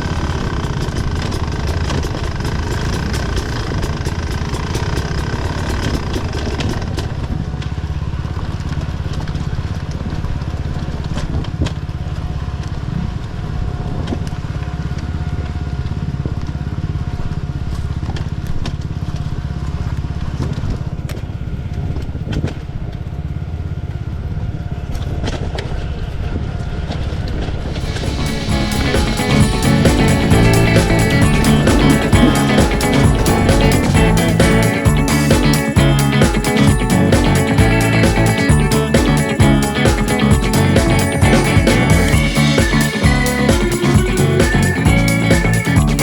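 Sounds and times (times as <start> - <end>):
motorcycle engine idling: 0.0 - 9.1, 27.8 - 46.0.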